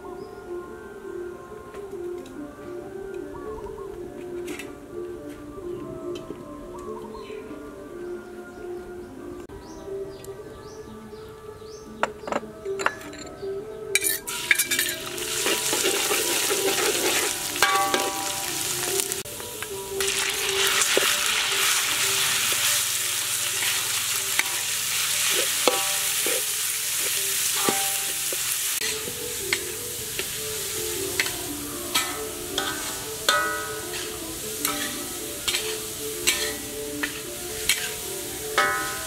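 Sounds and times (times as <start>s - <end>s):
metal ladle scraping a wok: 14.0s - 18.6s, 20.0s - 39.0s
garlic sizzling in oil: 14.3s - 39.0s.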